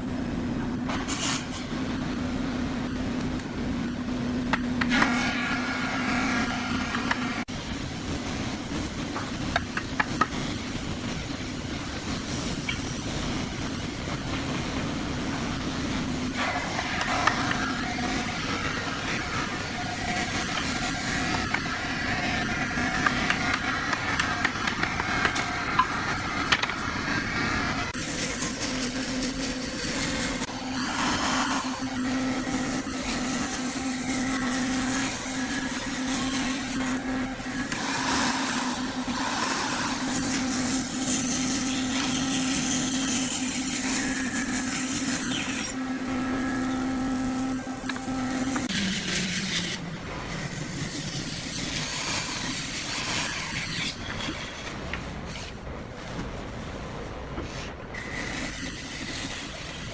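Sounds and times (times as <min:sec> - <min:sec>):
machine hum: 0:01.7 - 0:59.9
mechanical running noise: 0:15.6 - 0:54.9.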